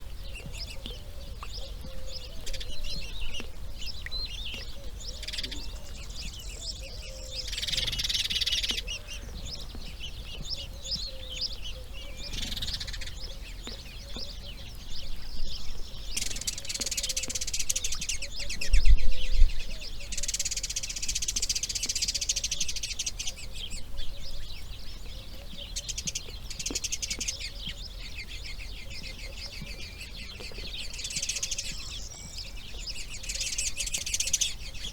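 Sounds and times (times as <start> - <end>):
birds chirping: 0.0 - 34.9.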